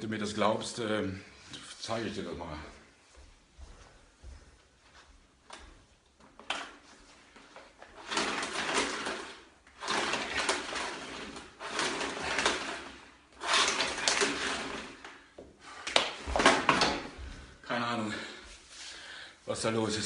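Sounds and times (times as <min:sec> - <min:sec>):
scraping and rustling: 0:06.4 - 0:15.2.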